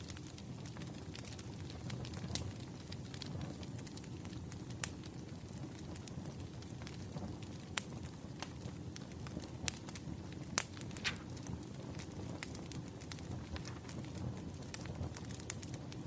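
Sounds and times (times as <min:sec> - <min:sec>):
low rush of burning logs: 0:00.0 - 0:16.0
sharp pops of fire: 0:00.0 - 0:16.0
wood fire crackling: 0:00.0 - 0:16.0.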